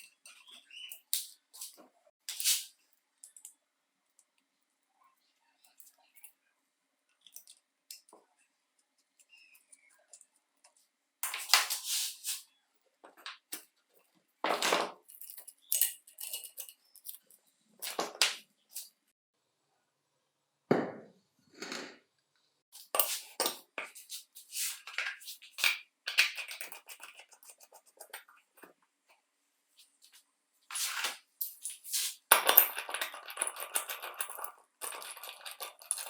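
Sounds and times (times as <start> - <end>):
metal parts and tools clinking: 14.5 - 18.9, 30.7 - 36.0.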